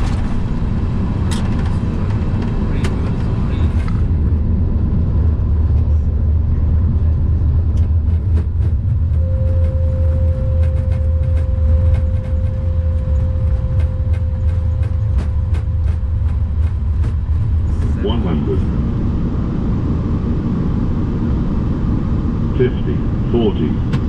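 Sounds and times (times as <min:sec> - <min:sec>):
aircraft cockpit rumble: 0:00.0 - 0:24.0
steady warning tone: 0:08.8 - 0:24.0.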